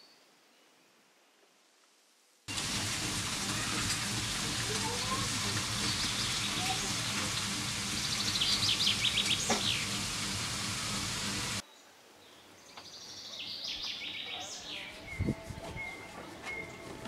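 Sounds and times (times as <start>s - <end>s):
background hiss: 0.0s - 2.5s
small birds chirping in trills: 4.8s - 10.2s, 11.4s - 16.9s.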